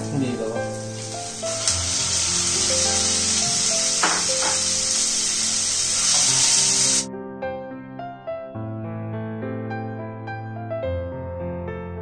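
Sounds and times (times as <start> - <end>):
chicken sizzling in frying pan: 0.0 - 7.1
background music: 0.0 - 12.0.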